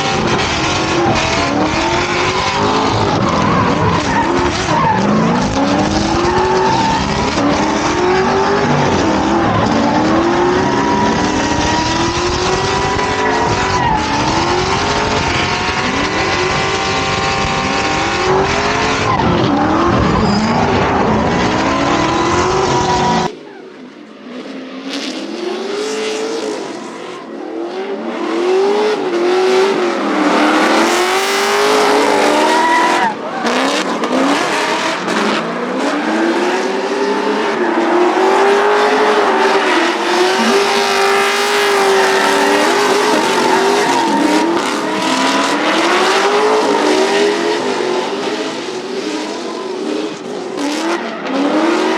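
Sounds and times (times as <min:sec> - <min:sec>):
car engine revving: 0:00.0 - 0:23.3, 0:24.9 - 0:51.9
tyres squealing: 0:37.5 - 0:47.0.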